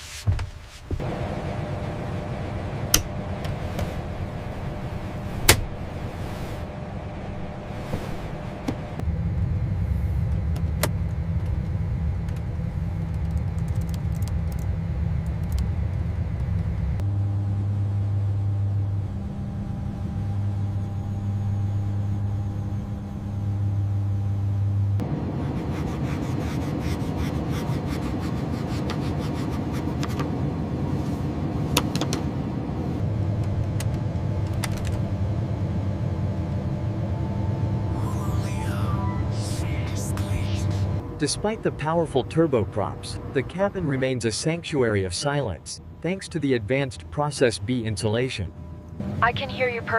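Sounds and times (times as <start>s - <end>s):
low mechanical rumble and hum: 0.2s - 49.9s
faint clicks and rattles: 13.1s - 15.6s.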